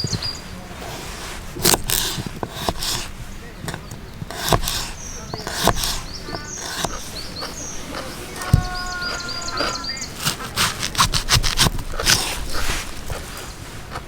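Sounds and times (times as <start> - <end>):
small bird chirping: 0.0 - 0.6, 3.4 - 10.7
dull thud: 3.7 - 13.2.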